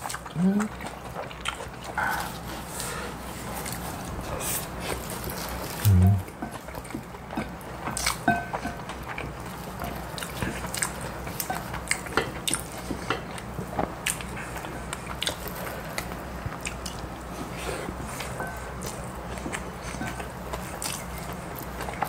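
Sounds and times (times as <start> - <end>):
people chewing wet smacks: 0.0 - 22.0.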